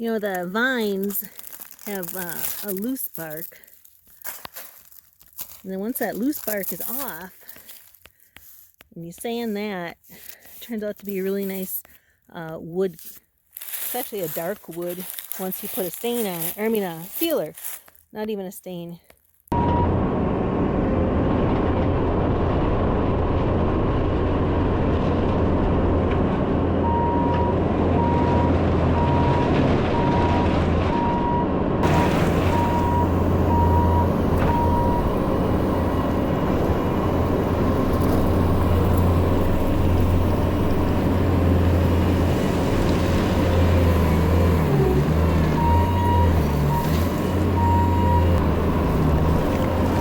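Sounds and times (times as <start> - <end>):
diesel engine running: 0.0 - 3.7, 19.5 - 50.0
backup alarm beeping: 19.5 - 20.0, 26.8 - 36.9, 45.5 - 48.4.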